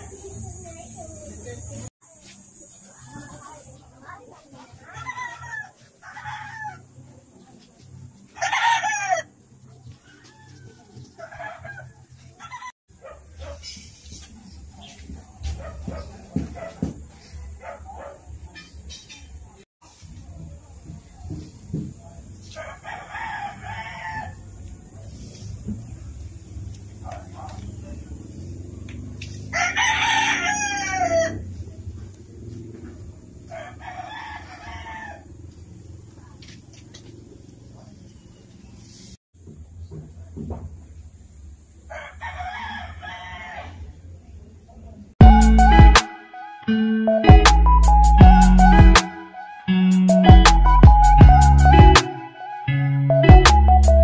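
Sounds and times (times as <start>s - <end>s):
rooster crowing: 8.4s - 9.3s, 22.5s - 24.4s, 29.5s - 31.5s, 33.5s - 35.3s, 41.9s - 43.9s
faint rooster calls: 29.5s - 31.6s, 33.5s - 35.3s.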